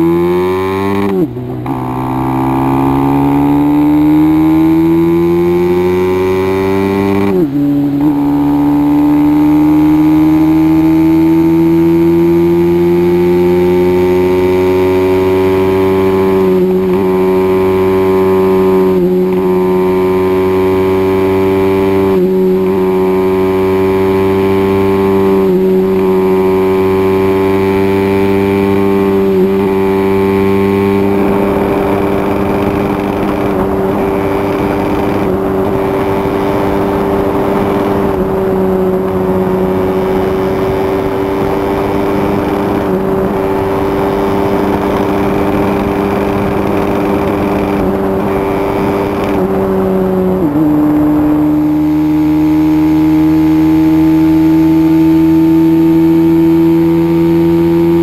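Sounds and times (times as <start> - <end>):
motorcycle engine running flat out: 13.5 - 58.0.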